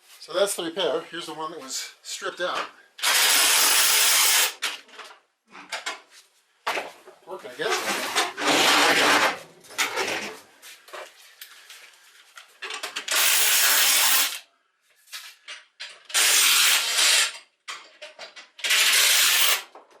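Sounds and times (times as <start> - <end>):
driver drill running: 3.0 - 4.6, 13.1 - 14.4, 18.6 - 19.6.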